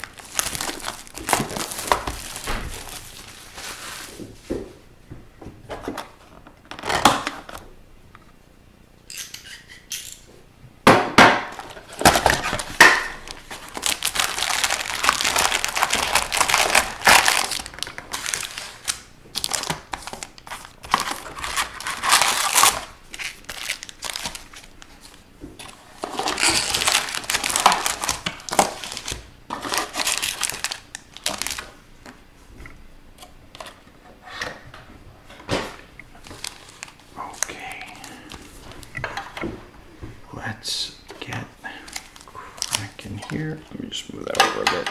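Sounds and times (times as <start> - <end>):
plastic wrapping crinkling and tearing: 0.0 - 4.5, 6.8 - 7.5, 11.5 - 32.2, 35.7 - 39.3, 41.1 - 44.8.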